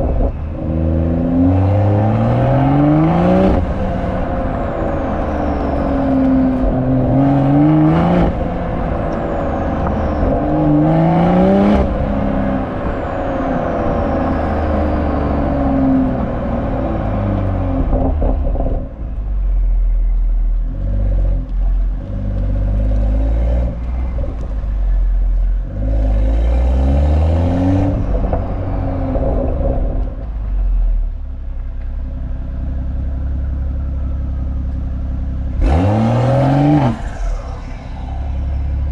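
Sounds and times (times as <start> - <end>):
car exhaust accelerating: 0.0 - 38.9
engine rumbling unevenly: 0.0 - 38.9.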